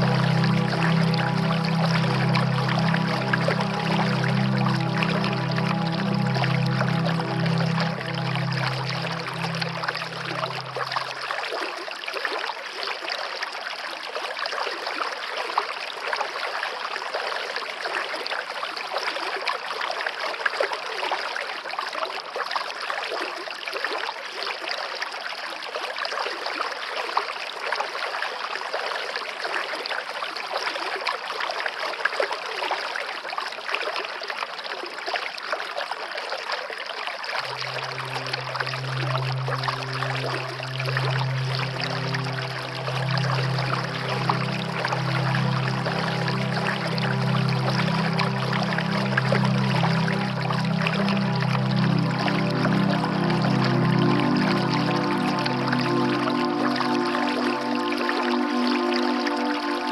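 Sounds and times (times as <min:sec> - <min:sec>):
low held music tone: 0:00.0 - 0:11.5, 0:37.4 - 0:59.9
stream babbling: 0:00.0 - 0:19.4, 0:36.9 - 0:59.9.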